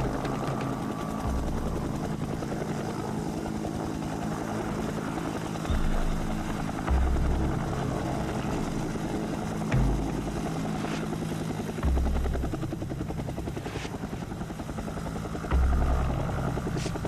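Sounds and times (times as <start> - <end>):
helicopter rotor chopping: 0.0 - 17.0.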